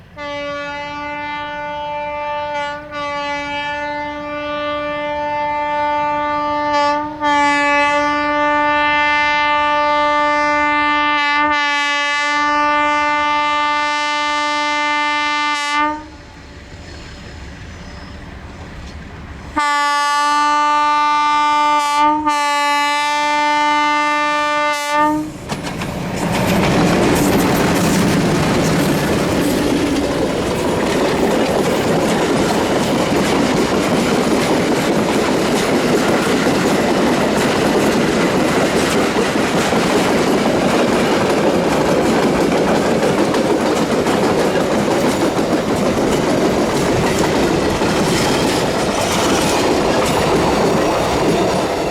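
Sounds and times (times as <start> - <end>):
train horn: 0.1 - 17.2, 19.5 - 25.4
train wheels rumbling on rails: 16.2 - 19.6, 24.9 - 51.9.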